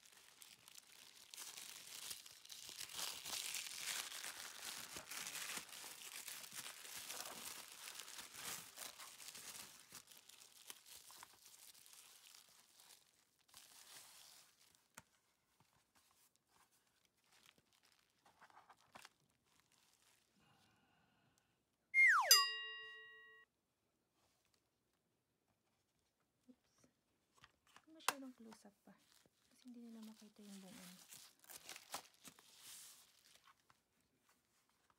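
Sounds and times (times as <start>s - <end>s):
packing paper crinkling: 0.0s - 20.4s, 29.0s - 34.9s
tone dropping in pitch: 22.0s - 23.4s.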